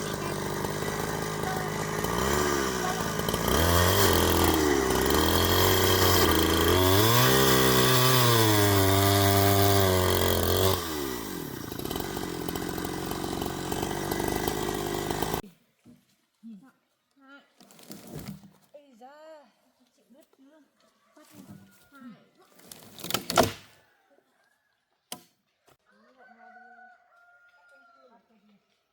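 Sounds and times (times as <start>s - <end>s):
two-stroke chainsaw revving: 0.0s - 15.4s.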